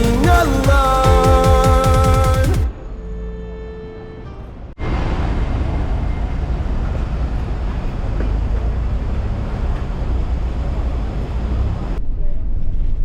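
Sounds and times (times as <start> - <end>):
song: 0.0 - 3.4.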